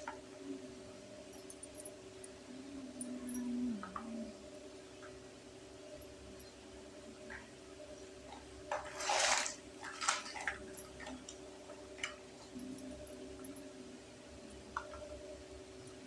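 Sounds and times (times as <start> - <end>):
steady low hum: 0.0 - 9.0, 9.6 - 16.0
packaging rustling scrape: 8.7 - 10.5.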